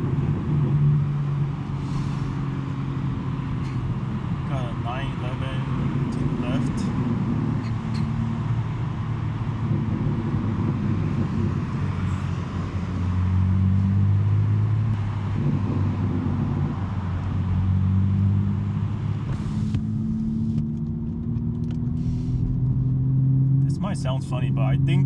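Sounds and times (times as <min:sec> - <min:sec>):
car engine droning: 0:00.0 - 0:25.0
tyre and road hiss: 0:01.8 - 0:02.4.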